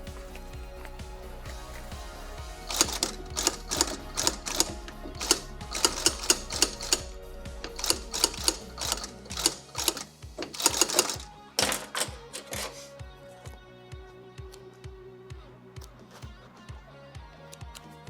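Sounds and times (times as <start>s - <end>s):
background music: 0.0s - 18.0s
hand tools clicking on leather: 7.6s - 11.3s.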